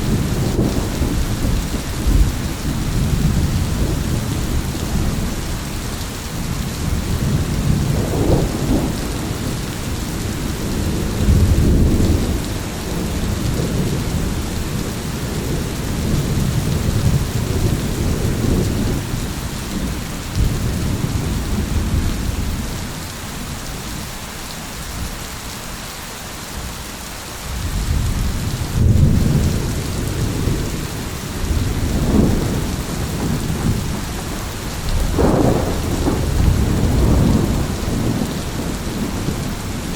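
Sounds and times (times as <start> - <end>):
heavy rain: 0.0 - 39.9
rolling thunder: 6.6 - 23.5, 27.5 - 39.9.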